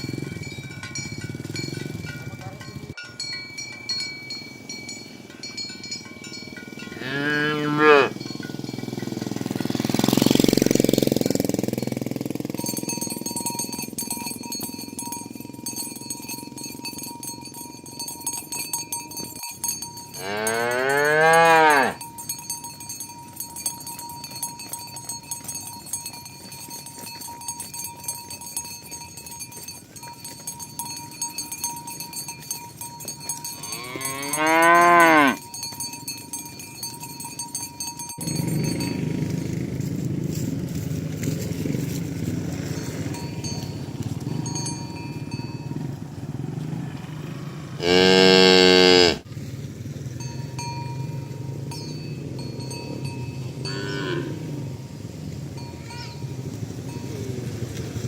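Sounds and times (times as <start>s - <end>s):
cattle mooing: 6.8s - 8.2s, 20.2s - 22.0s, 33.6s - 35.4s, 46.9s - 49.2s, 53.6s - 54.8s.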